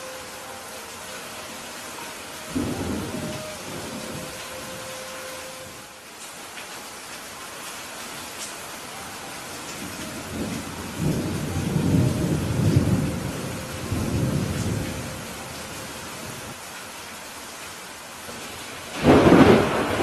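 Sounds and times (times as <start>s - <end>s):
heavy rain: 0.0s - 20.0s
rolling thunder rumble: 2.5s - 4.9s, 9.8s - 16.5s, 18.9s - 20.0s.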